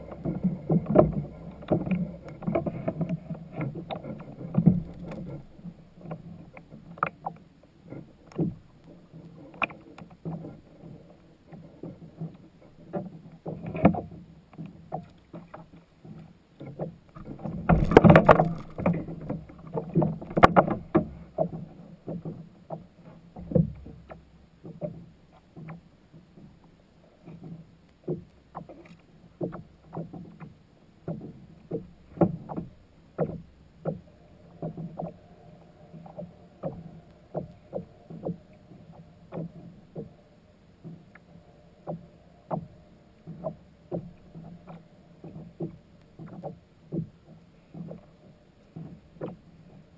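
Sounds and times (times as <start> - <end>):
water sloshing: 16.8 - 22.3
knocks against kayak hull: 17.2 - 22.3.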